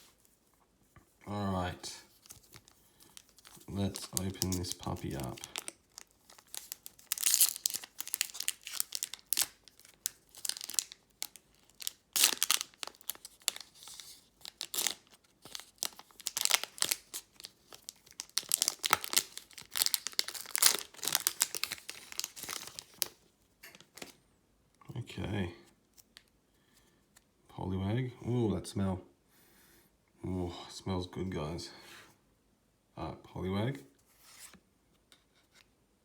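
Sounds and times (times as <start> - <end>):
plastic wrapper crinkling and tearing: 2.1 - 24.2.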